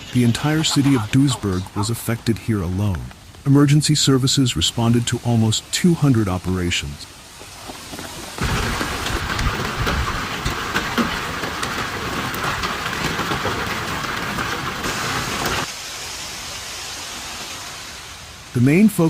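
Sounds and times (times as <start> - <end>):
hail clattering: 0.0 - 3.4, 7.6 - 15.8
rain hissing: 0.0 - 19.0.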